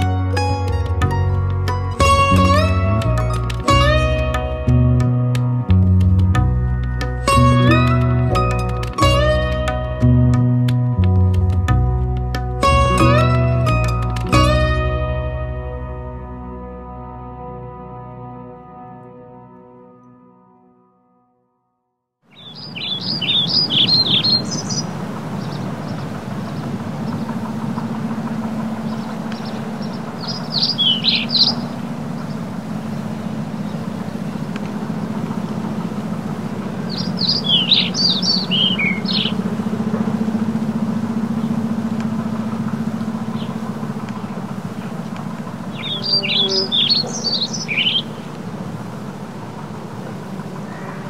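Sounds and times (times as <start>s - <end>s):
low background rush: 22.3s - 51.0s
songbird twittering: 22.3s - 51.0s.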